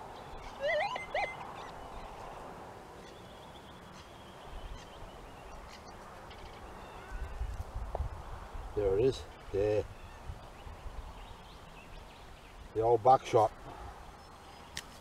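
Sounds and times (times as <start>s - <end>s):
bird warbling call: 0.3s - 2.1s.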